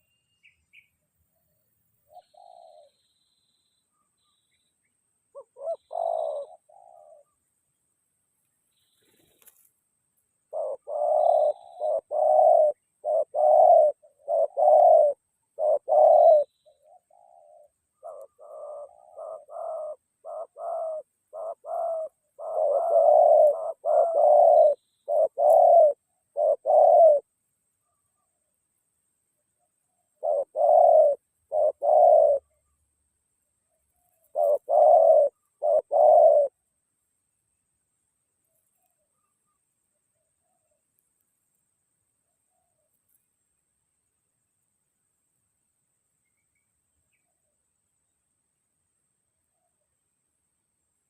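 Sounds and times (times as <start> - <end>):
doves cooing: 2.0 - 3.2, 5.3 - 7.5, 10.5 - 27.3, 29.8 - 32.7, 33.8 - 36.6.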